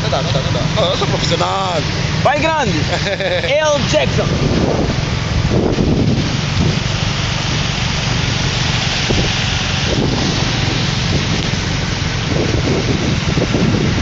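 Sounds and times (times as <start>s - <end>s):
car driving low rumble: 0.0s - 14.0s
heavy rain hissing: 0.0s - 14.0s.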